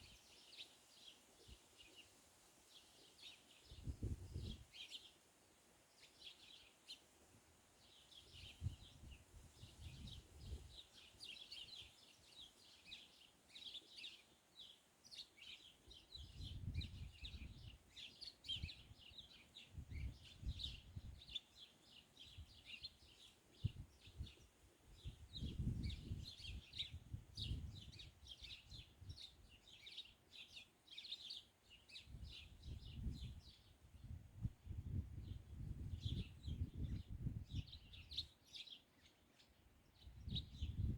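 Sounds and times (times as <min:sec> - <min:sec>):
small birds chirping: 0:00.0 - 0:40.9
wind gusts on microphone: 0:03.7 - 0:04.7, 0:08.3 - 0:10.8, 0:16.2 - 0:17.8, 0:19.7 - 0:21.3, 0:23.6 - 0:24.4, 0:25.0 - 0:29.2, 0:32.1 - 0:38.3, 0:40.1 - 0:40.9.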